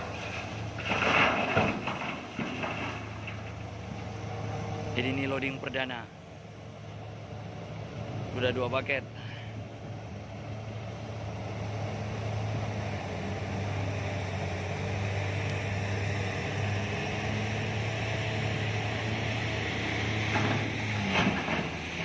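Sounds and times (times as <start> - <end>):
heavy diesel engines droning: 0.0 - 22.0.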